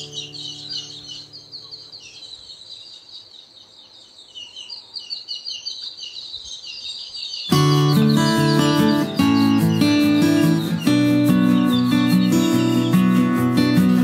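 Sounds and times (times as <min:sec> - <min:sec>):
small birds chirping: 0:00.0 - 0:14.0
guitar note: 0:07.5 - 0:14.0.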